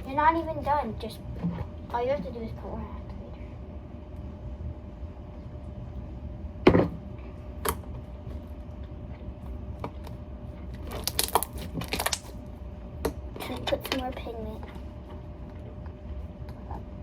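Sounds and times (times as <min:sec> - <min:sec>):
knock on container: 0:06.7 - 0:07.0
slime crackling and popping: 0:10.0 - 0:12.5.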